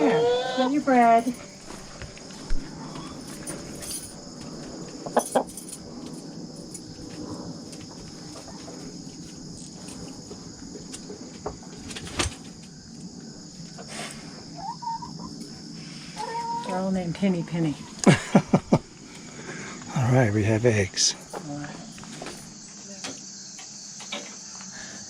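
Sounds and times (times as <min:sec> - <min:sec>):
insects chorus: 0:00.0 - 0:25.0
chickens clucking: 0:13.6 - 0:15.4, 0:16.1 - 0:16.9.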